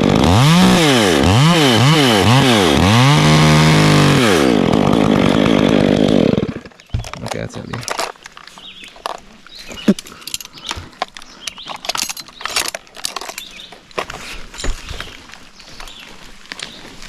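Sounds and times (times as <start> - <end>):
metal climbing hardware clinking: 7.0 - 13.8.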